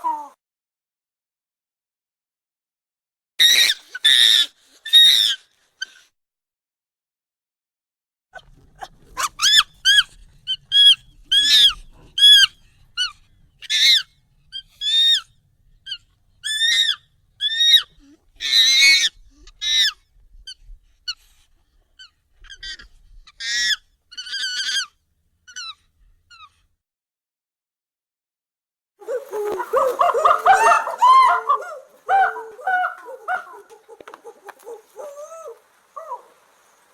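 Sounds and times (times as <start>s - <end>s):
sped up high-pitched monkey calls: 9.2s - 15.3s, 15.9s - 21.2s, 22.0s - 26.6s, 29.0s - 36.8s.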